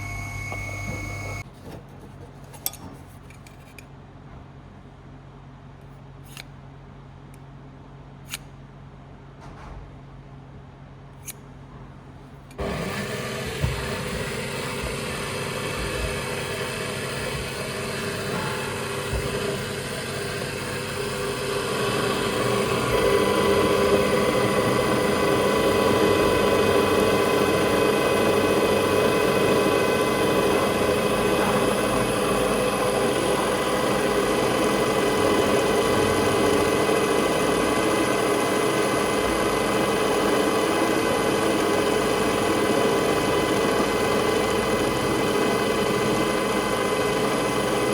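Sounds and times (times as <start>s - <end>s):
power tool whining: 0.0s - 1.4s, 12.6s - 47.9s.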